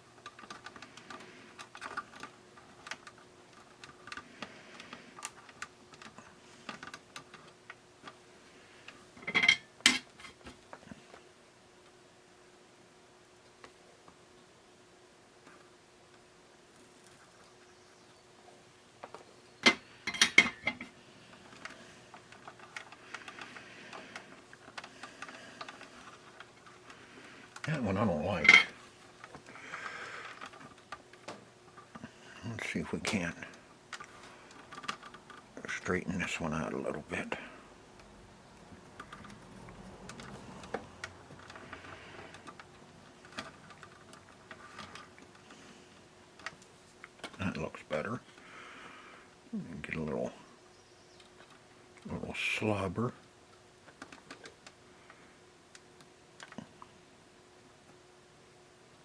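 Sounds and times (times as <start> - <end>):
faint steady hum: 0.0 - 59.0
small tools clicking and knocking: 19.0 - 32.1.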